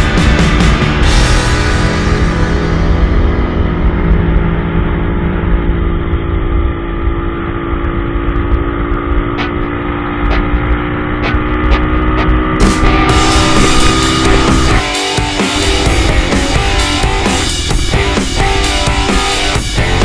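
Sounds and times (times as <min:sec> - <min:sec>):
motorcycle engine running: 0:00.0 - 0:20.0
wind rumble: 0:01.0 - 0:20.0.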